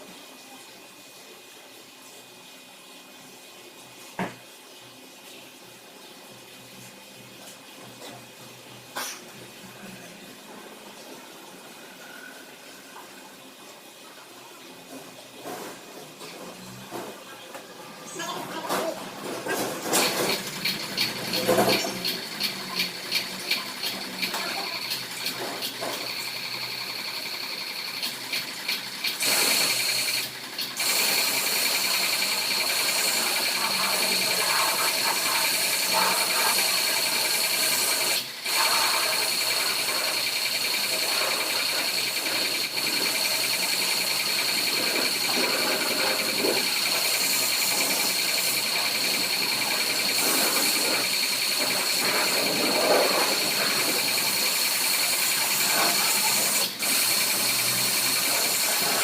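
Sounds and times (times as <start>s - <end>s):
car wash machine whining: 18.1s - 59.0s.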